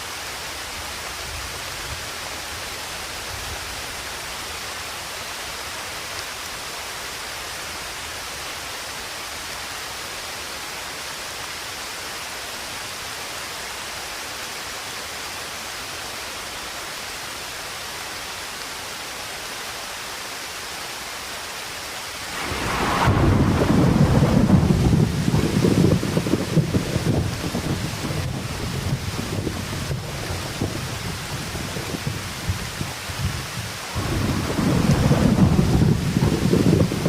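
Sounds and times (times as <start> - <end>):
rain hiss: 0.0 - 37.0
thunder rumble: 22.2 - 32.6, 33.2 - 37.0.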